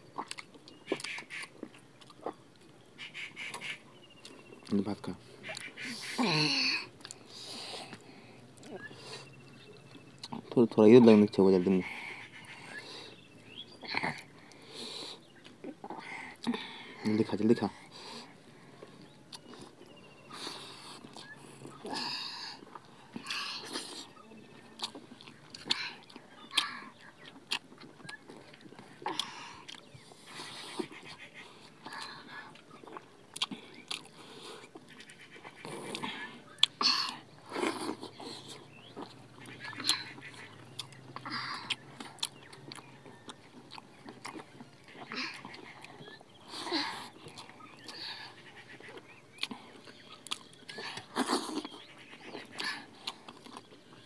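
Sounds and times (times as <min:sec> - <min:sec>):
wet chewing and lip-smacking: 0:00.0 - 0:54.0
small mouth clicks: 0:31.8 - 0:48.2, 0:48.8 - 0:53.7.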